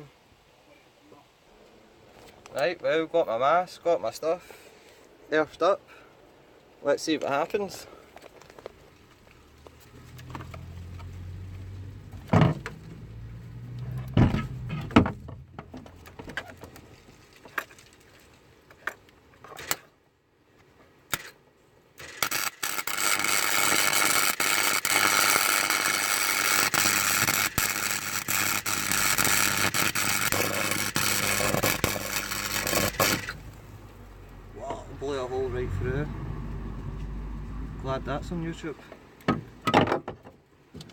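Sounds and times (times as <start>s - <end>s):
welding arc crackling and hissing: 22.0s - 33.8s.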